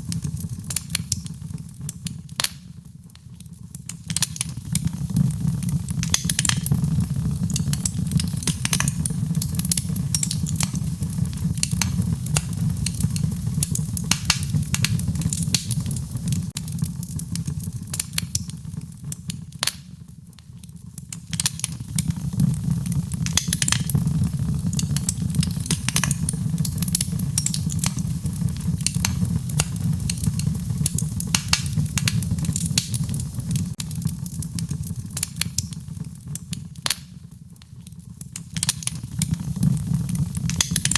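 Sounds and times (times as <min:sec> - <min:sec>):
wood fire crackling and popping: 0:00.0 - 0:40.9
steady low rumble: 0:06.7 - 0:09.8.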